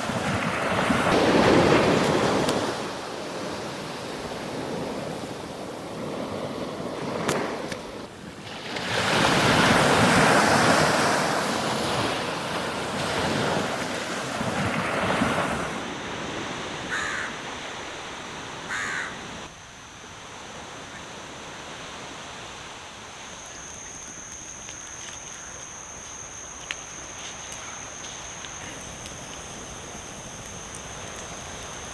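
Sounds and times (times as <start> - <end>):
sea waves breaking on beach: 0.0 - 19.5, 21.2 - 31.9
bird calling: 16.9 - 17.4, 18.6 - 19.5, 23.2 - 31.9.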